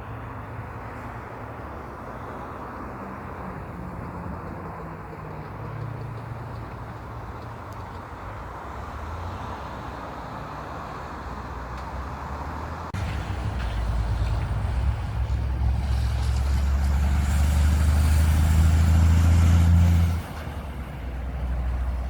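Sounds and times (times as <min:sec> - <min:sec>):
heavy vehicle engine and tyres: 0:00.0 - 0:22.0
close engine: 0:09.3 - 0:22.0.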